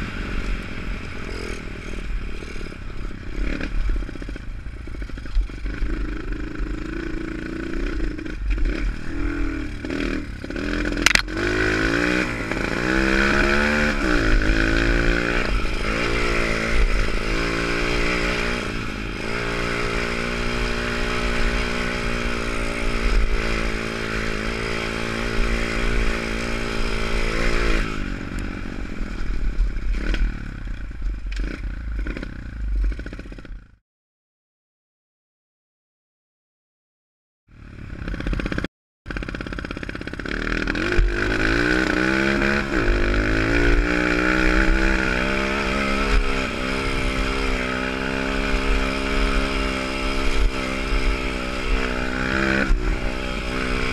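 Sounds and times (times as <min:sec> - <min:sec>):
small motorbike engine revving: 0:05.0 - 0:30.6, 0:37.6 - 0:53.9.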